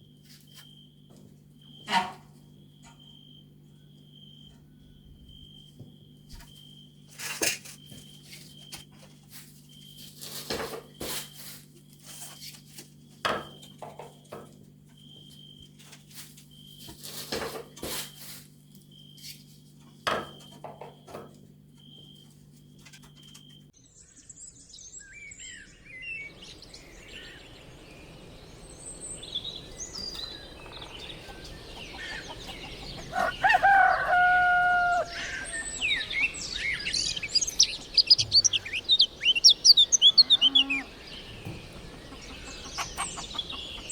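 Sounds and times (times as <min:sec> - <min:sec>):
birds chirping: 0:23.2 - 0:43.9
rooster crowing: 0:31.6 - 0:42.7
high pulsing chirp: 0:34.9 - 0:43.9.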